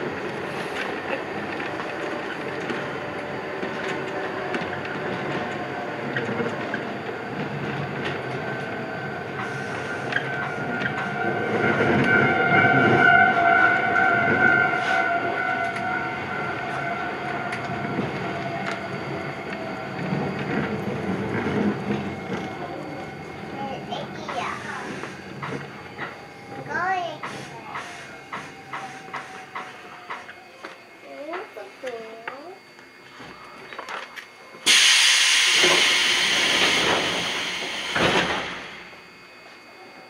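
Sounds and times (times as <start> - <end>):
train rumbling: 0.0 - 32.7, 34.6 - 39.7
high whine: 0.0 - 40.0
rail-joint clicks: 0.7 - 11.1, 27.2 - 32.4, 33.8 - 38.9.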